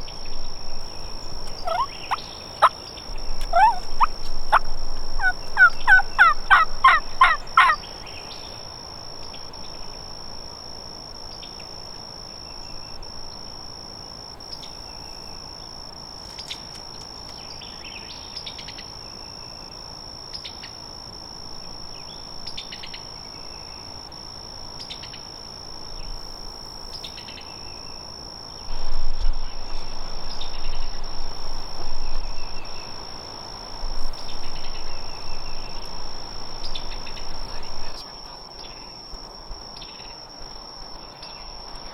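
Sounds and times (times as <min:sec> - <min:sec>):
faint bird chirps: 0:00.0 - 0:08.6
high-pitched insect drone: 0:00.0 - 0:15.8, 0:17.4 - 0:41.9
turkey gobbling: 0:01.5 - 0:02.8, 0:03.4 - 0:07.8.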